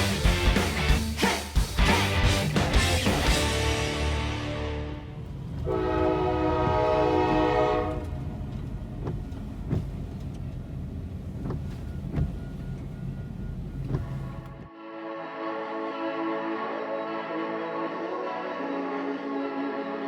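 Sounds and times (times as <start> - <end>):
passing train rumble: 2.0 - 14.7
train horn chord: 3.3 - 8.5.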